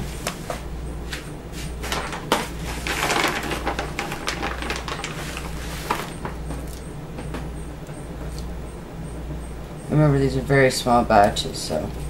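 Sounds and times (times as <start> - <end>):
small hard pieces clicking and rattling: 2.8 - 6.1.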